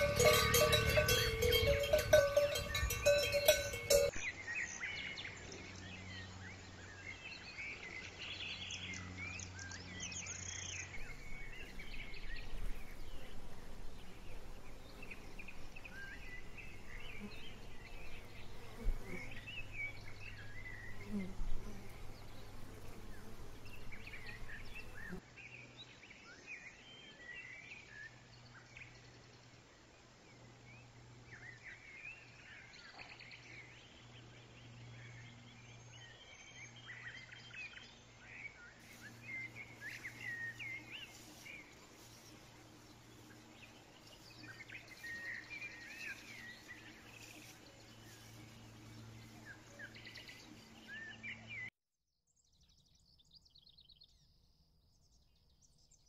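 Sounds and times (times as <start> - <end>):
cow bell clanking: 0.0 - 4.2
low hum: 0.0 - 4.2.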